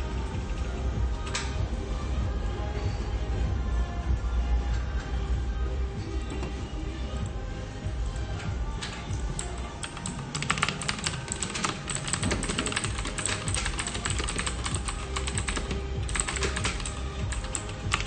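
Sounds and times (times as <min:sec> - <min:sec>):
low office hum: 0:00.0 - 0:18.0
keyboard typing clatter: 0:08.8 - 0:18.0.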